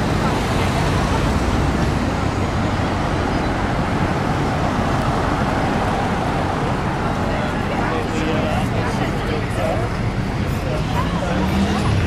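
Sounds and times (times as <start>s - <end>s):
cars driving past: 0.0s - 12.0s.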